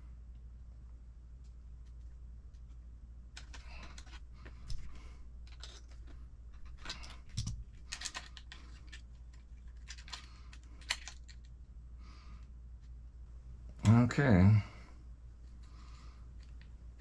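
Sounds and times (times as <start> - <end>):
metal parts and tools clicking: 3.4 - 11.5.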